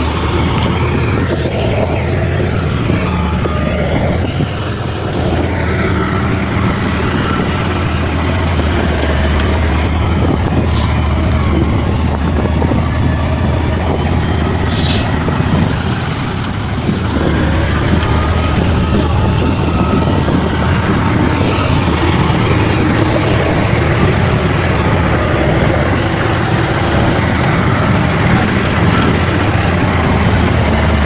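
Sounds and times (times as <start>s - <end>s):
bulldozer diesel engine humming: 0.0s - 31.0s
brief hisses: 14.7s - 15.1s.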